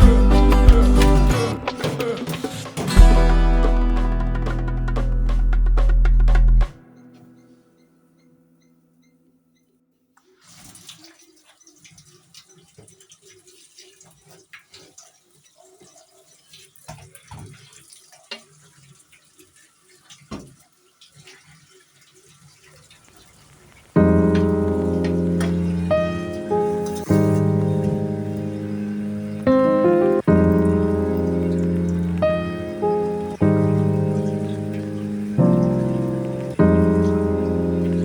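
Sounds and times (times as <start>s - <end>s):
loud background music: 0.0s - 6.8s.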